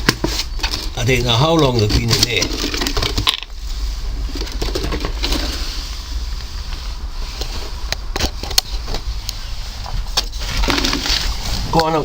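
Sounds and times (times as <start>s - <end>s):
rain pattering on greenhouse: 0.8s - 3.6s.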